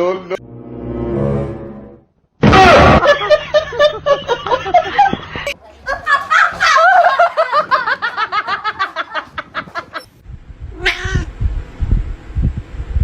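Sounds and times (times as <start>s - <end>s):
cat meowing: 10.8s - 11.3s.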